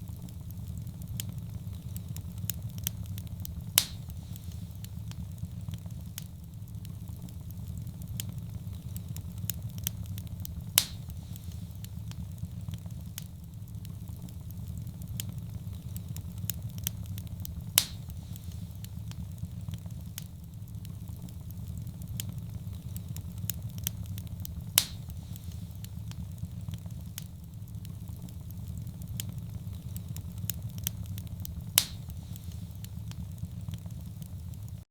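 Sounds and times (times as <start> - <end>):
low rumble of flames: 0.0 - 34.9
wood fire crackling: 0.0 - 34.9
sharp pop of fire: 2.8 - 6.3, 10.5 - 12.3, 16.9 - 20.3, 22.2 - 27.4, 28.2 - 34.6.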